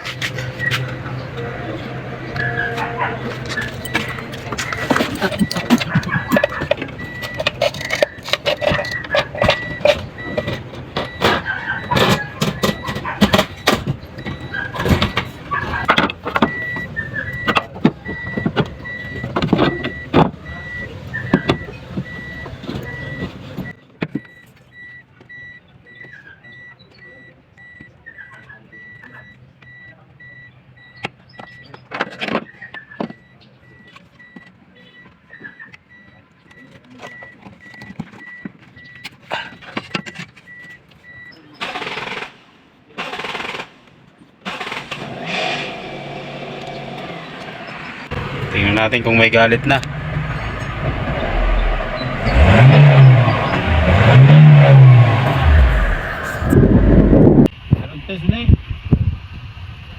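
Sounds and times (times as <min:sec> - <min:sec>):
tools and metal parts clattering: 0:02.4 - 0:24.7, 0:36.5 - 0:41.2.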